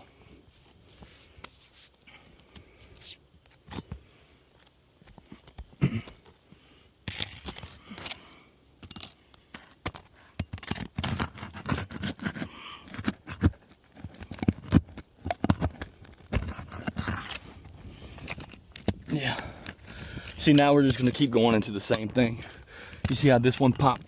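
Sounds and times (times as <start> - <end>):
shingles scraping and tapping: 8.8 - 24.0.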